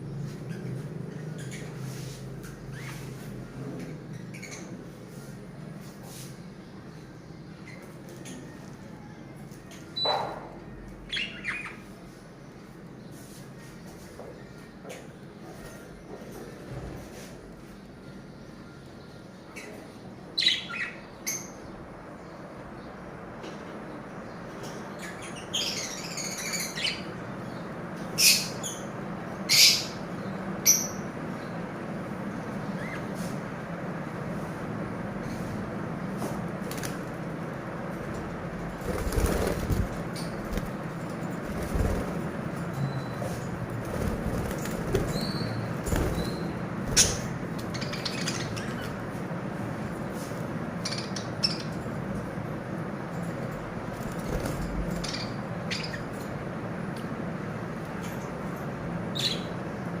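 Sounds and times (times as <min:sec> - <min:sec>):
birds chirping and squawking: 0:00.3 - 0:05.2, 0:06.8 - 0:08.8, 0:09.4 - 0:12.1, 0:17.8 - 0:22.4, 0:24.5 - 0:31.5, 0:32.4 - 0:33.6, 0:38.7 - 0:52.0, 0:53.7 - 0:56.6, 0:59.0 - 0:59.8
lovebirds chattering and shrieking: 0:00.3 - 0:05.2, 0:09.7 - 0:12.2, 0:18.2 - 0:22.4, 0:24.5 - 0:31.6, 0:38.7 - 0:51.8, 0:53.9 - 0:56.5, 0:59.0 - 0:59.8.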